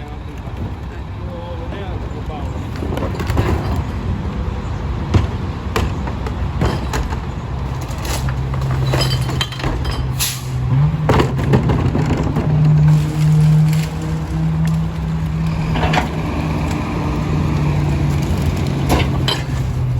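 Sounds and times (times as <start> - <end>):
garbage truck engine running: 5.0 - 19.9.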